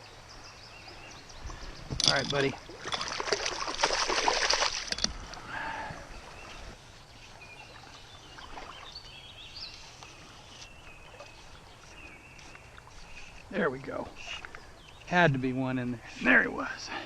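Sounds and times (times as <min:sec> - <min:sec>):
stream flowing: 0:01.7 - 0:17.0
water splashing: 0:02.1 - 0:06.8, 0:07.4 - 0:09.0.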